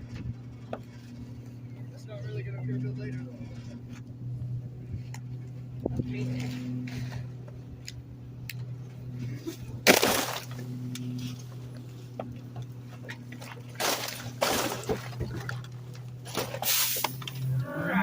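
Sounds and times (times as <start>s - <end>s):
truck engine humming: 0.0s - 18.0s
trash crashing into truck hopper: 9.8s - 10.7s, 13.7s - 17.3s.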